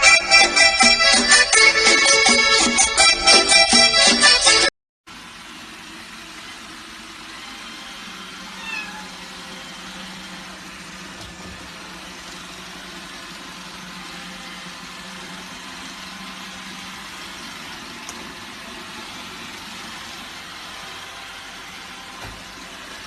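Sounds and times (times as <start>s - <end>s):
cat meowing: 8.5s - 9.3s.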